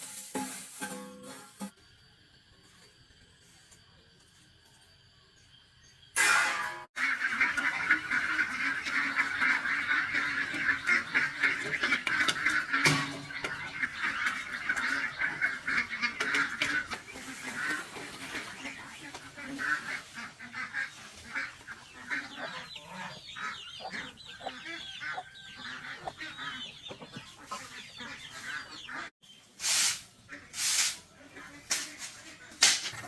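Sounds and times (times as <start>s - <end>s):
waterfowl honking: 6.2s - 29.1s
high peeping calls: 7.3s - 29.5s.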